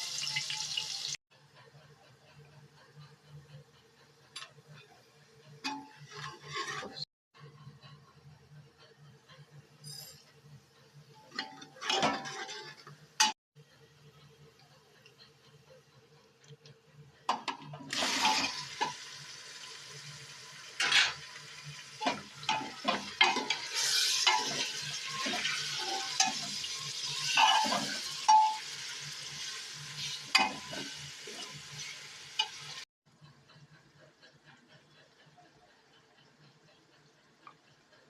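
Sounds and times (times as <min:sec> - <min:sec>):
food sizzling in a frying pan: 0:00.0 - 0:01.2, 0:17.9 - 0:32.8.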